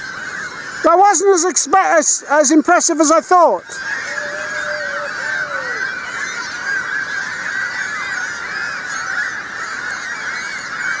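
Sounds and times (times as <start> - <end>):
gulls squawking: 0.0 - 11.0
lower gull call falling in pitch: 0.9 - 7.0.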